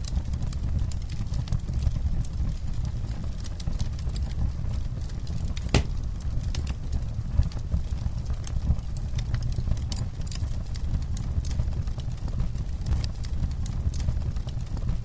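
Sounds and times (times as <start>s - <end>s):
campfire crackling: 0.0s - 15.0s
loud fire pop: 5.6s - 6.1s.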